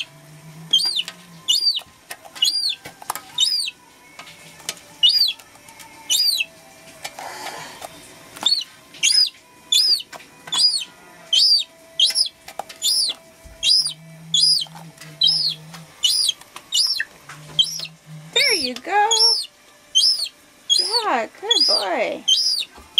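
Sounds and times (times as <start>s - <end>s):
gull chick peeping calls: 0.7s - 2.8s, 3.4s - 3.8s, 5.0s - 5.4s, 6.1s - 6.5s, 8.4s - 22.7s.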